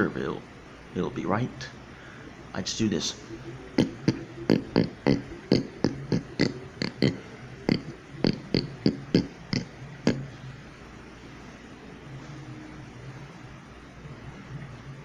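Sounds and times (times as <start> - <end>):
person imitating pig grunts: 3.7 - 10.4.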